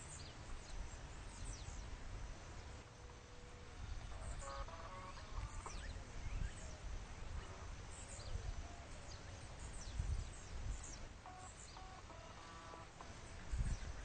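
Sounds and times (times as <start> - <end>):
wind rumble on microphone: 3.5 - 11.2, 13.0 - 14.0.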